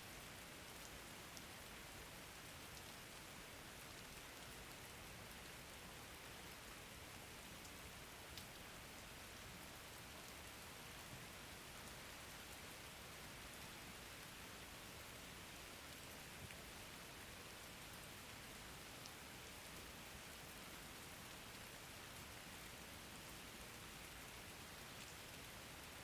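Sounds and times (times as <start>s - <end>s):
steady rain hiss: 0.0s - 26.0s
single raindrop ticks: 8.3s - 8.6s.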